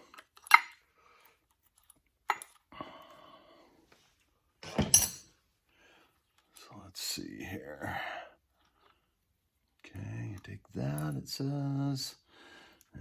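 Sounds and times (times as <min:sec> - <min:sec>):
hand tools clinking on metal: 0:04.6 - 0:05.3.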